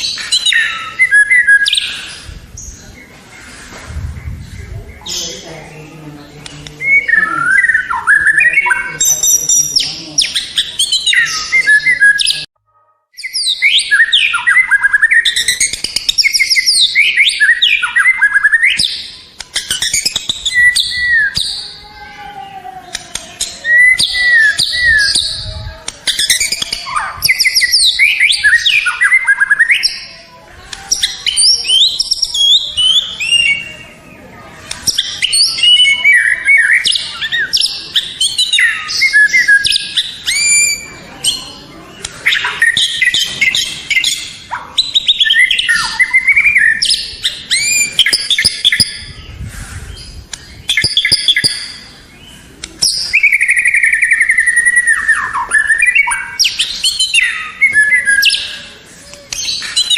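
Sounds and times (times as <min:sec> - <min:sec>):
songbird singing whistles and trills: 0:00.0 - 0:02.8, 0:06.6 - 0:12.5, 0:13.2 - 0:21.8, 0:23.1 - 0:30.1, 0:30.7 - 0:34.0, 0:34.7 - 0:41.6, 0:42.2 - 0:49.3, 0:49.9 - 0:59.9.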